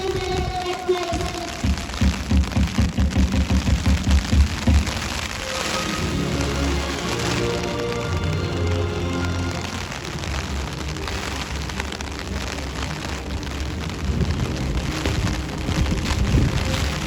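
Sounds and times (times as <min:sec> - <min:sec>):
heavy rain pouring: 0:00.0 - 0:17.0
low rumble: 0:09.7 - 0:17.0.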